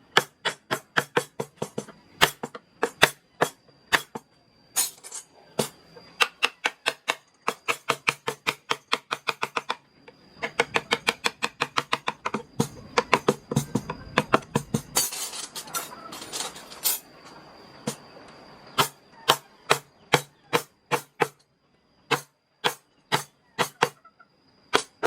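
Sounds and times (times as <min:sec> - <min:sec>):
mallet tapping chisel: 0:10.4 - 0:14.9.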